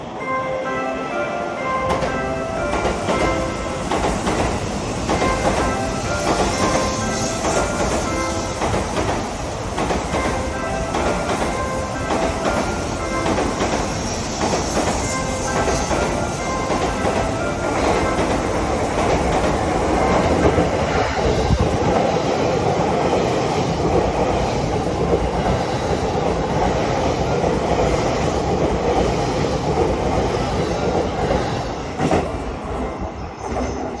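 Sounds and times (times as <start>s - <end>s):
train wheels on rails: 1.7s - 34.0s.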